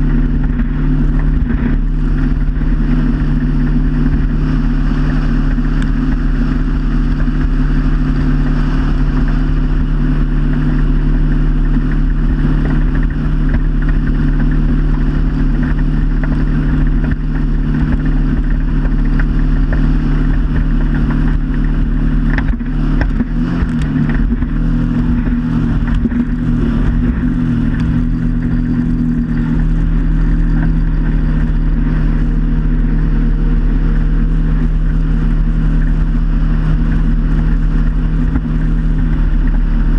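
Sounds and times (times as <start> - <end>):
motorboat engine running: 0.0 - 39.9
wind: 0.0 - 39.9.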